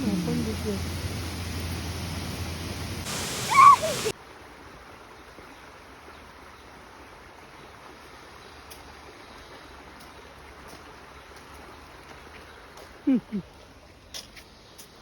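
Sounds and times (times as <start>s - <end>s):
waterfall rushing: 0.0s - 4.2s
loud voice call: 3.1s - 4.1s.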